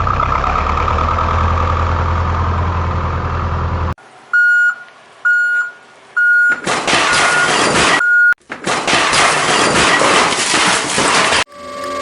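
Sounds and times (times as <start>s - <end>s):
vehicle engine running: 0.0s - 4.0s, 11.5s - 12.0s
reversing beeps: 4.4s - 6.6s, 7.2s - 8.4s.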